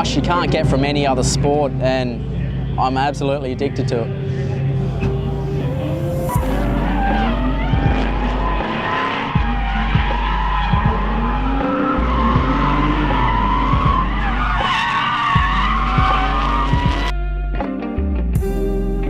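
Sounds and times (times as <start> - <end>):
car engine revving: 0.0 - 17.1
tyres squealing: 4.5 - 17.1.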